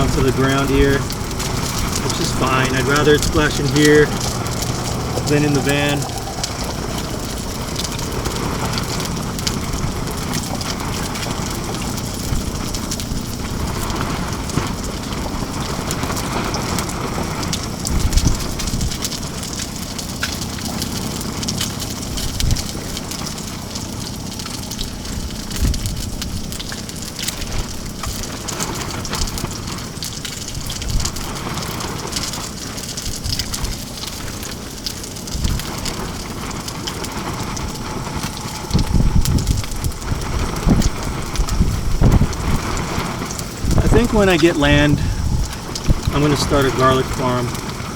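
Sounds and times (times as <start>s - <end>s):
fish sizzling in hot oil: 0.0s - 47.9s
wind gusts on microphone: 0.0s - 47.9s.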